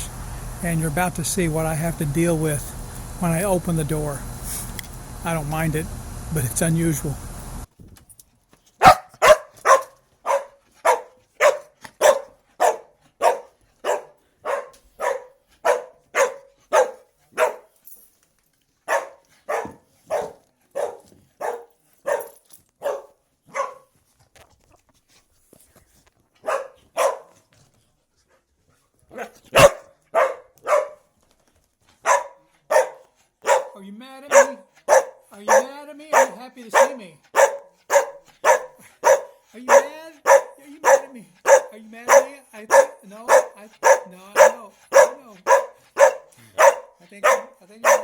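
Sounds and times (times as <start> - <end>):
dog barking: 8.8 - 17.8, 18.9 - 23.9, 26.4 - 27.4, 29.1 - 31.1, 32.0 - 48.0.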